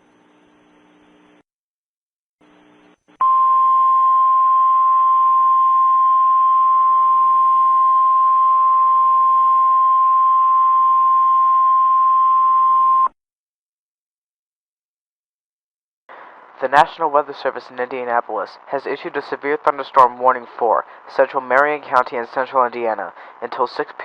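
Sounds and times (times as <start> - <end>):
faint radio static hiss: 0.0 - 1.4, 2.4 - 3.0
steady alarm tone: 3.2 - 13.1.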